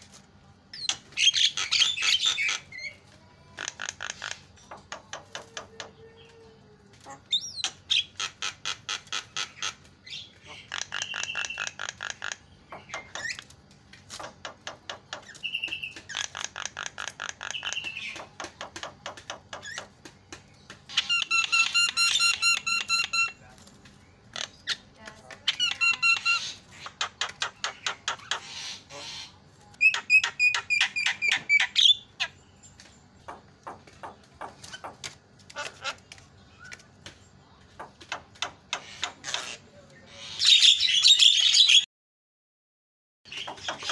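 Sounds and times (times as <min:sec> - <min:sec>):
bird chattering harshly: 0:00.8 - 0:05.6, 0:07.3 - 0:13.4, 0:14.2 - 0:19.9, 0:20.9 - 0:23.4, 0:25.5 - 0:32.4.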